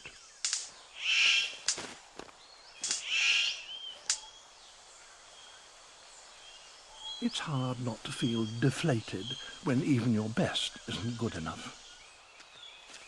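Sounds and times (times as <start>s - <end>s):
harsh buzzy bird calls: 0.0s - 1.9s, 2.5s - 5.7s
faint forest background: 0.0s - 13.0s
sharp clicks: 0.4s - 0.7s, 2.8s - 3.1s.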